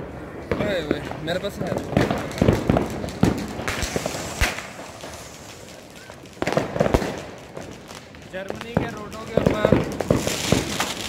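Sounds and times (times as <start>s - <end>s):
firecrackers banging: 0.0s - 11.0s.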